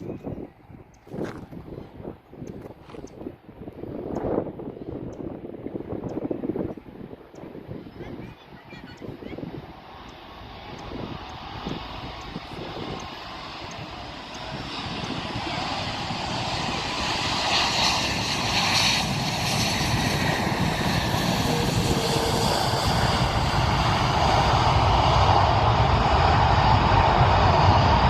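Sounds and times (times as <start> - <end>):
airplane engines running: 0.0 - 28.0.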